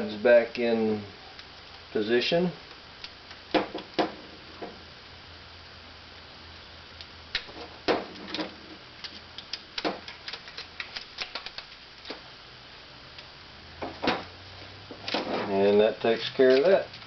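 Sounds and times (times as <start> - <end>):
small plastic ticks: 9.4 - 11.8.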